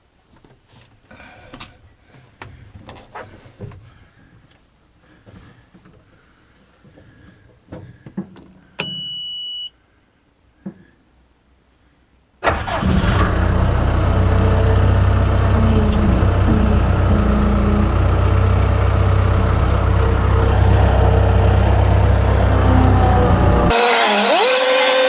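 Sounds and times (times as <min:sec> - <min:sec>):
engine running with deep hum: 0:13.0 - 0:25.0.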